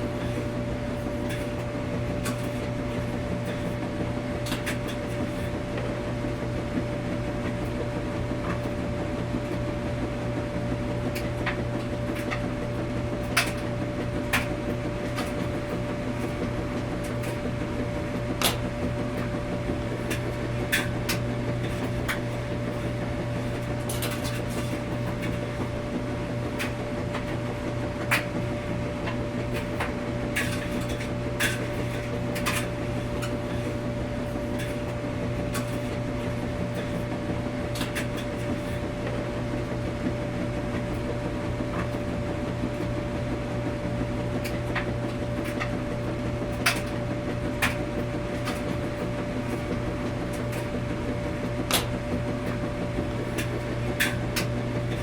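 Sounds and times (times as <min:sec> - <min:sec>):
washing machine humming: 0:00.0 - 0:55.0.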